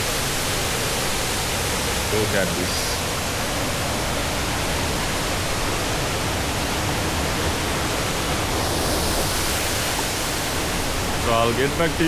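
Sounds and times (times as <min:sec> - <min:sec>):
waterfall rushing: 0:06.7 - 0:12.0.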